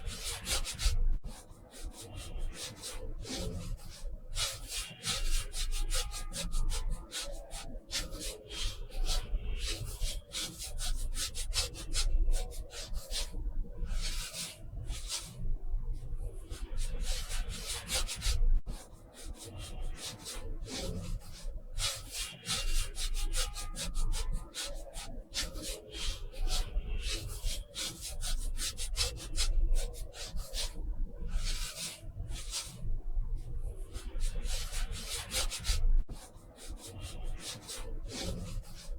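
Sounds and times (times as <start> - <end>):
art tool rubbing across paper: 34.0 - 38.9.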